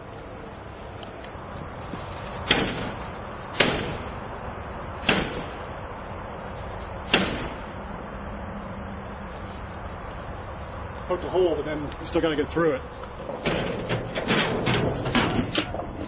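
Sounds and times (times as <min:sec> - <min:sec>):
sharp strikes on metal security screen: 0:02.4 - 0:04.1, 0:05.0 - 0:05.6, 0:07.1 - 0:07.6.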